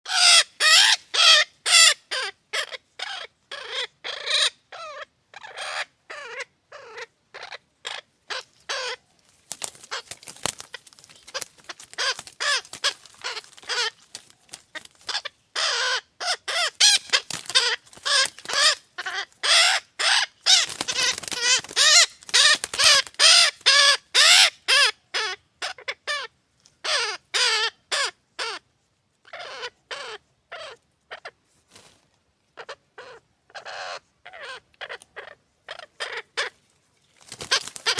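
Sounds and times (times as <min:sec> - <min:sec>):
nestling birds begging calls: 0:00.1 - 0:28.6, 0:37.2 - 0:37.9.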